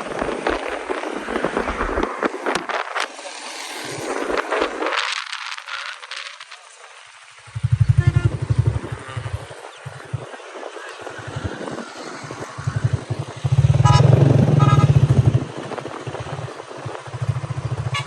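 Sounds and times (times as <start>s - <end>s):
motorcycle engine starting: 7.4s - 10.2s, 11.2s - 18.0s.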